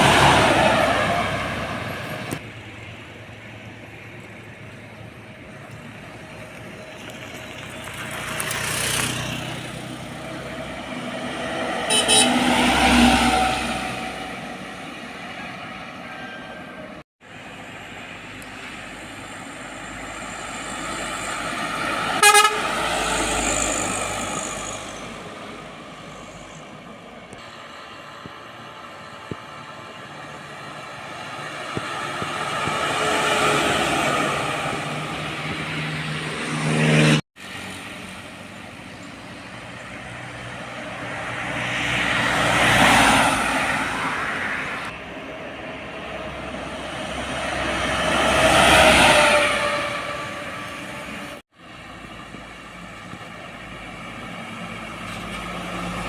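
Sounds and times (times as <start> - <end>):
heavy trucks passing: 0.0 - 56.0
truck horn toot: 11.7 - 12.8, 22.1 - 23.0, 49.0 - 51.2.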